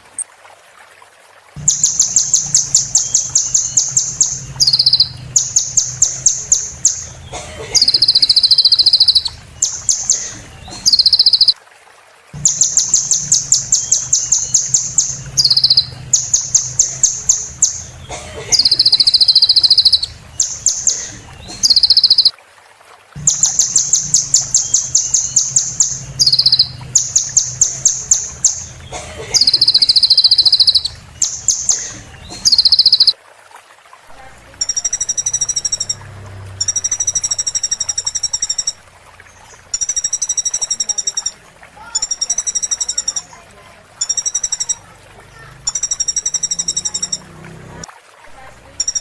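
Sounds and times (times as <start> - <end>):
low steady hum: 1.5 - 11.5, 23.1 - 33.1
sunbird song trills and chips: 1.6 - 11.6, 12.4 - 22.3, 23.2 - 33.2.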